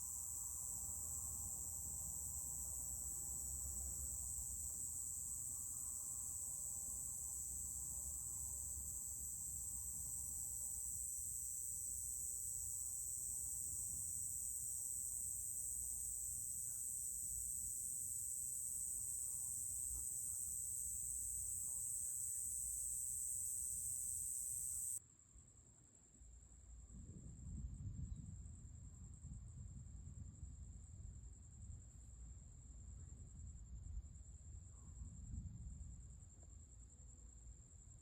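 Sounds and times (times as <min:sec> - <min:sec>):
insect chorus trilling: 0:00.0 - 0:25.0.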